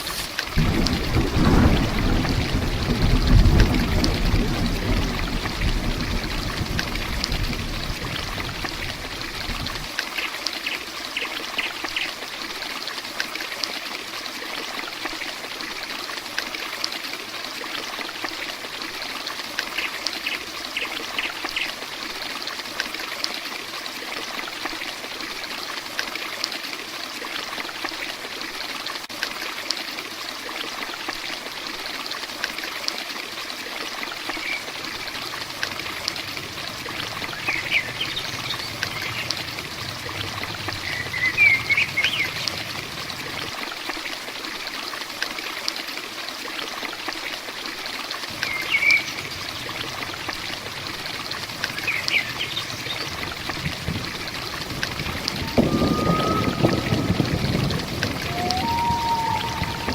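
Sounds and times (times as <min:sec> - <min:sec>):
heavy rain pouring: 0:00.0 - 0:10.2, 0:34.0 - 0:44.7, 0:48.0 - 0:59.9
low thunder rumble: 0:00.1 - 0:09.9, 0:34.6 - 0:43.6, 0:48.3 - 0:59.9.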